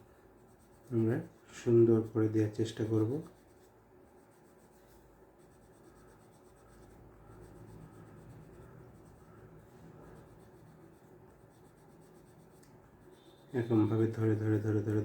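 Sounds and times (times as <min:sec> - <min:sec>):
shading on paper: 0:00.0 - 0:15.0.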